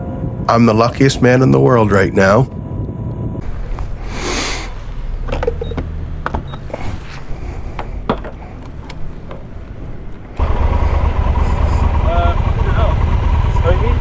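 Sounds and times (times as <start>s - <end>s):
motorcycle engine running: 3.4s - 14.0s.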